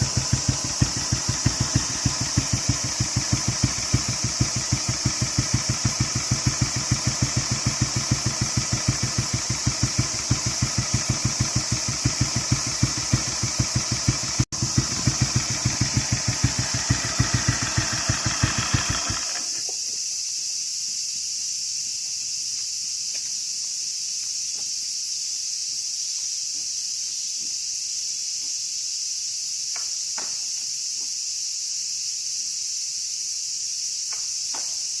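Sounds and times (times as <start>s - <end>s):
motorcycle engine idling: 0.0s - 19.6s
insects chirping: 0.0s - 35.0s.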